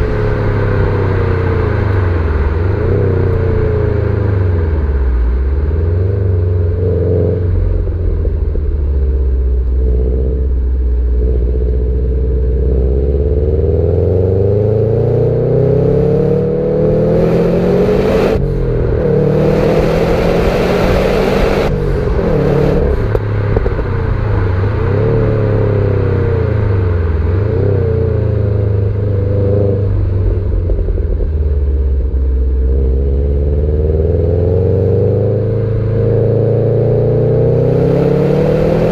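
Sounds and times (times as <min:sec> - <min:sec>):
car engine revving: 0:00.0 - 0:38.9
loud rushing noise: 0:16.7 - 0:26.9.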